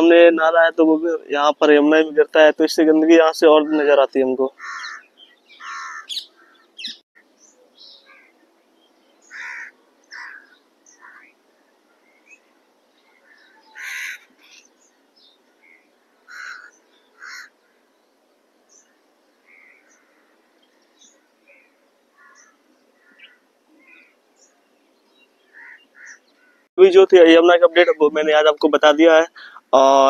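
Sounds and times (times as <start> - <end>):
bird calls: 3.4 - 26.7, 29.3 - 30.0.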